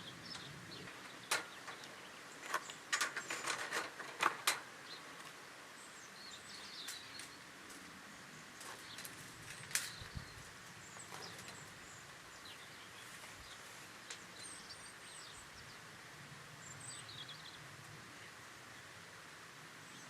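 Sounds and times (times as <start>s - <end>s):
steady low hiss: 0.0s - 20.0s.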